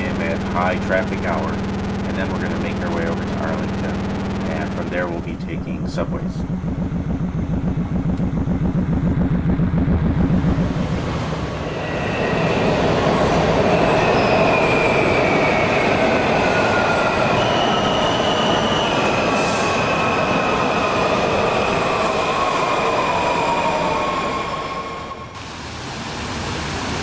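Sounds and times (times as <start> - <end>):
high-pitched wheel squealing: 5.4 - 25.4
subway train ride noise: 10.9 - 27.0.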